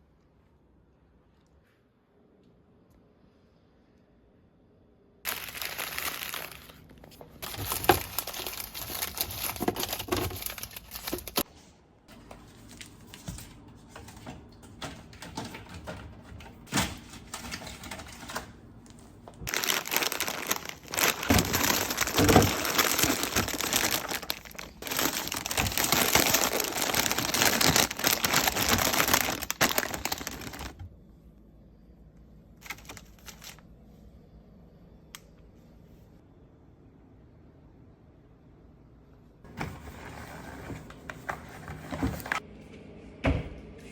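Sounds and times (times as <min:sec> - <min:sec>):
items being set down: 0:05.3 - 0:11.4, 0:19.5 - 0:30.7
plastic packaging crinkling: 0:05.3 - 0:11.4, 0:19.5 - 0:30.8, 0:32.6 - 0:33.6.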